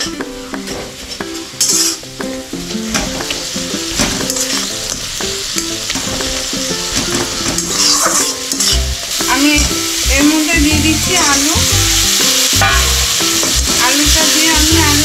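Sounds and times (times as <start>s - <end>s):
soft background music: 0.0s - 15.0s
spices sizzling in oil: 0.0s - 15.0s
spatula scraping pan: 7.0s - 9.0s.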